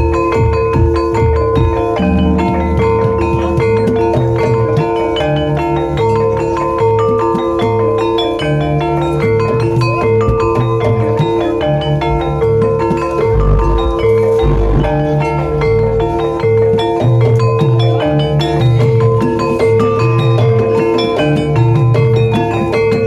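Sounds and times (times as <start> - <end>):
struck metal-keyed instruments melody: 0.0 - 23.0
steady ringing note: 1.4 - 5.4, 10.8 - 17.6
low drum strokes: 2.0 - 4.6, 13.2 - 15.9.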